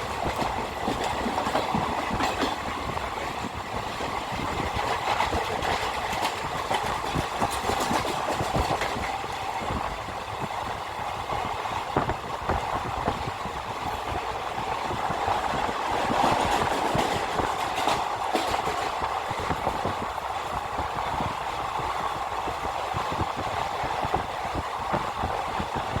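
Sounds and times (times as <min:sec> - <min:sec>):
train wheels clattering over rail joints: 0:00.0 - 0:09.8, 0:14.8 - 0:20.1.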